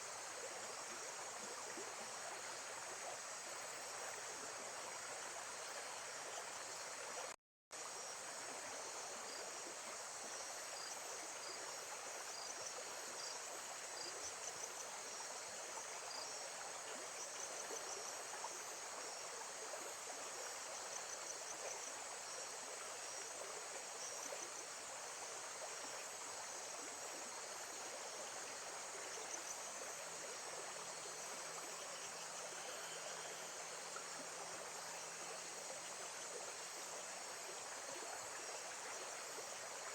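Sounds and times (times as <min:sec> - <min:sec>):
flowing water: 0:00.0 - 0:39.9
insects chirping: 0:08.8 - 0:19.2, 0:20.5 - 0:39.9.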